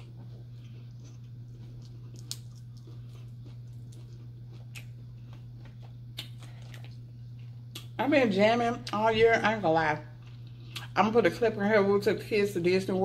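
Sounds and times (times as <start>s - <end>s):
quiet chewing: 0.0s - 8.0s, 10.2s - 11.0s
low electrical hum: 0.0s - 13.0s.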